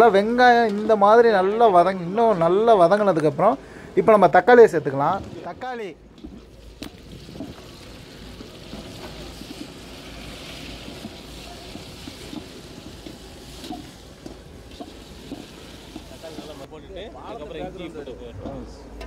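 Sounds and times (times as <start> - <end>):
vegetables sizzling in hot oil: 6.6 - 16.7.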